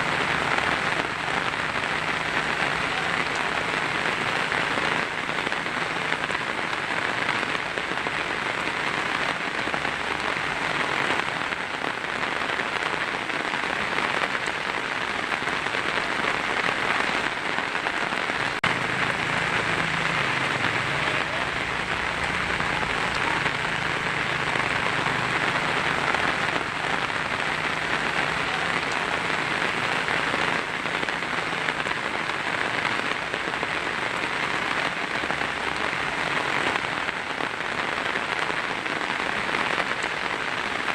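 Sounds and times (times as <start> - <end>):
heavy rain on a tin roof: 0.0 - 40.9.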